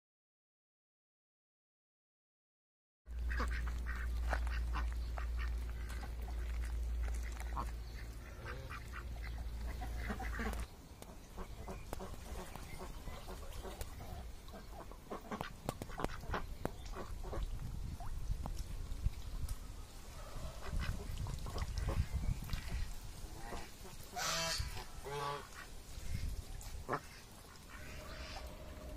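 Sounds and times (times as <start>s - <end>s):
ducks quacking: 3.2s - 17.5s, 20.2s - 28.9s.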